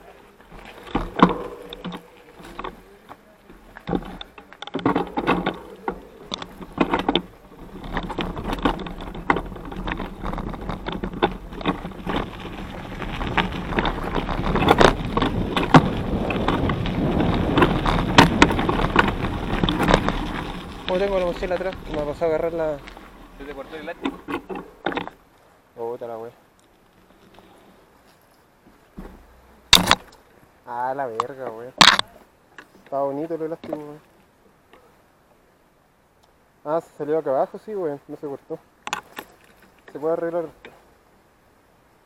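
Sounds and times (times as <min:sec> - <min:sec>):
mountain bike rattling and knocking: 0:00.0 - 0:25.2, 0:29.0 - 0:30.2, 0:31.2 - 0:34.0
tyre and wind rush: 0:00.0 - 0:25.3.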